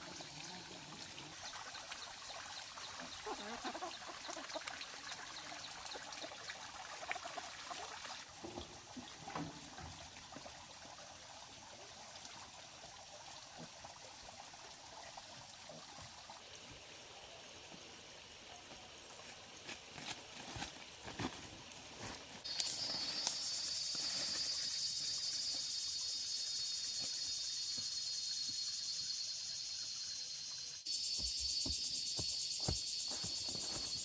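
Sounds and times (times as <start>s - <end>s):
water trickling: 0.0s - 17.1s.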